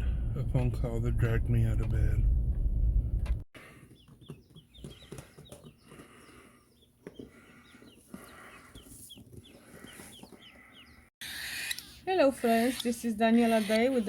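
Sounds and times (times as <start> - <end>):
baby birds peeping: 3.6 - 14.0.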